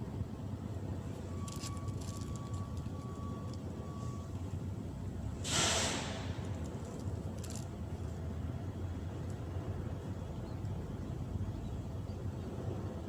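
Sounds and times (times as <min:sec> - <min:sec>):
short loud hiss: 0:05.4 - 0:06.4.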